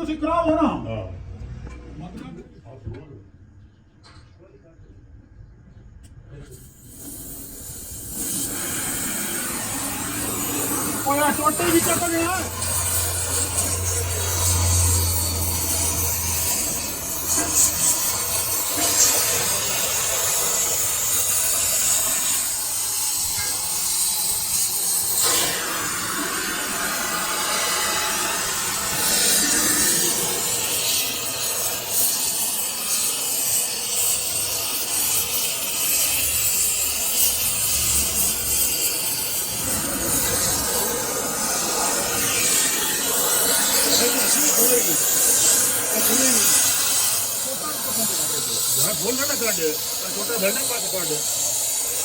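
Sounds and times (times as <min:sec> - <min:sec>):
lathe tool scraping metal: 0:06.7 - 0:52.0.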